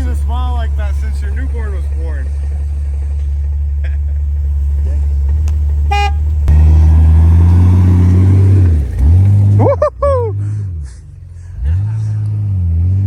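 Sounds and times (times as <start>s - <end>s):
vehicle engine under load: 0.0s - 13.0s.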